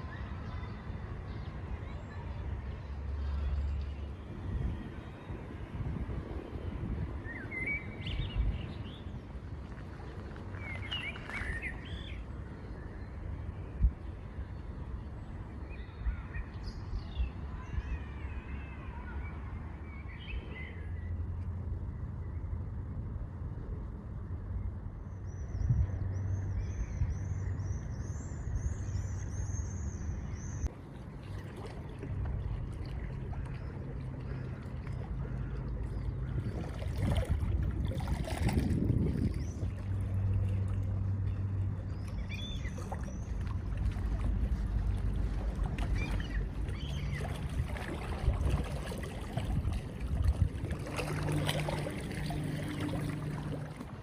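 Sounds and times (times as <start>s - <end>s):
low outdoor rumble: 0.0s - 54.0s
birds chirping: 39.2s - 43.8s, 45.4s - 49.4s.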